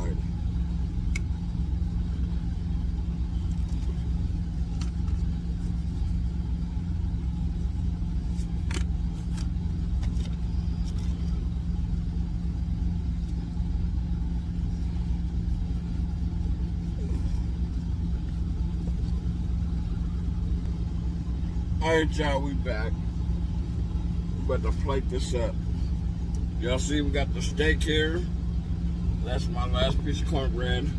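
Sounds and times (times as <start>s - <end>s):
truck engine idling: 0.0s - 30.9s.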